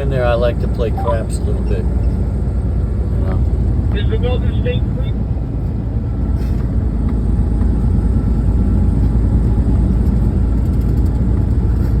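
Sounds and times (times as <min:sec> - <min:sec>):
road noise: 0:00.0 - 0:12.0
truck engine rumble: 0:00.0 - 0:12.0.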